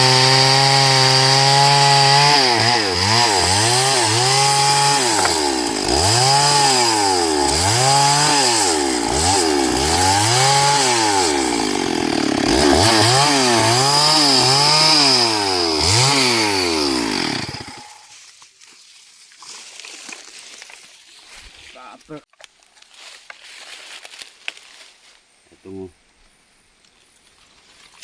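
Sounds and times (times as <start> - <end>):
chainsaw cutting wood: 0.0 - 18.1.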